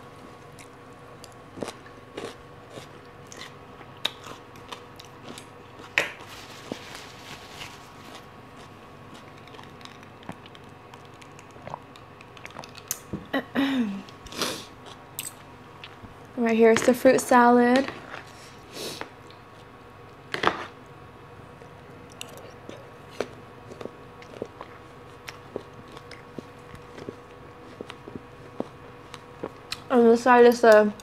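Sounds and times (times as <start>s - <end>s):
faint steady hum: 0.0s - 31.0s
chewing and crunching: 0.3s - 13.1s, 21.6s - 29.9s.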